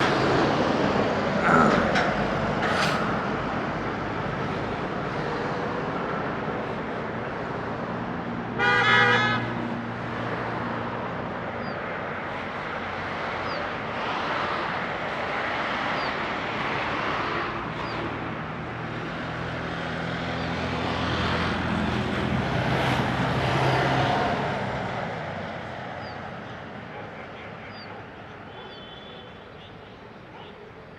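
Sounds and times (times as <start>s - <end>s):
road traffic: 0.0s - 30.9s
vehicle horn: 8.6s - 9.6s, 28.6s - 29.8s.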